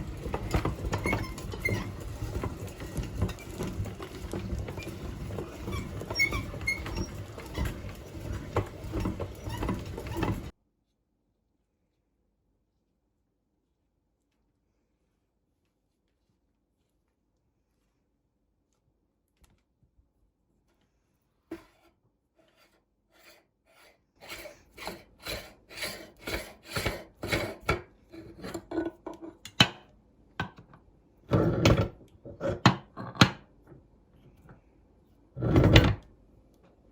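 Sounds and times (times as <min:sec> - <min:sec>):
meat grinder grinding: 0:00.0 - 0:10.5, 0:23.8 - 0:28.8.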